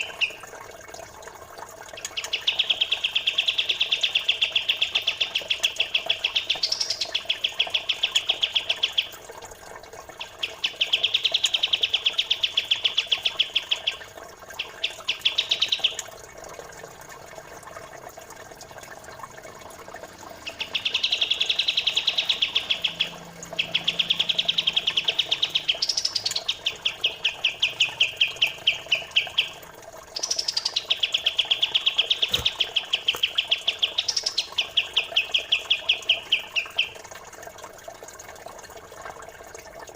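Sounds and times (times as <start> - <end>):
songbird chirping: 0.0 - 0.5, 2.0 - 9.2, 20.4 - 37.0
trickle of flowing water: 0.0 - 39.9.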